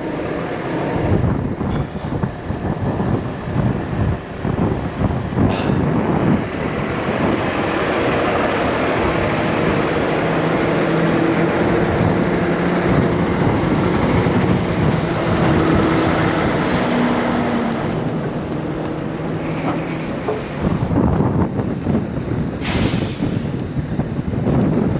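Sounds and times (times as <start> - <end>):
truck diesel engine running: 0.0 - 23.8
short hiss: 22.6 - 23.5.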